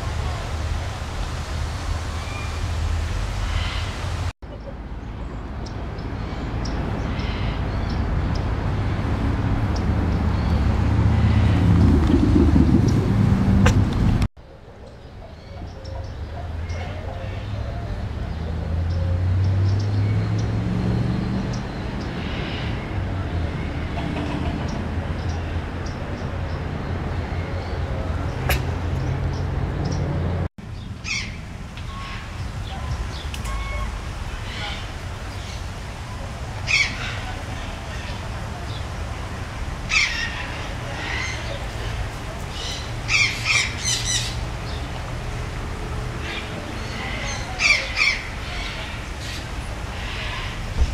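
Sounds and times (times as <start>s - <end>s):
motor vehicle engine rumble: 6.4s - 14.3s, 17.0s - 36.6s, 48.3s - 50.9s
low steady rumble: 9.2s - 14.3s.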